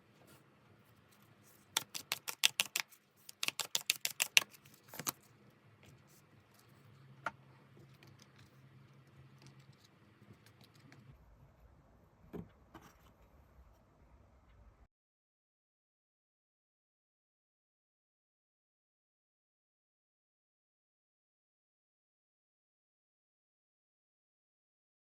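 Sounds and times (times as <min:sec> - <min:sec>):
cards being shuffled: 0:01.5 - 0:05.3.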